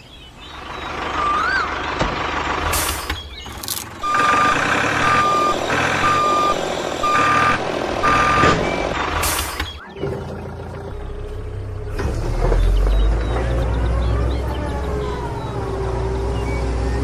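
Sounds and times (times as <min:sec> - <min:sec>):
engine running: 0:00.4 - 0:17.0
truck reversing alarm beeping: 0:04.0 - 0:10.2, 0:11.4 - 0:17.0.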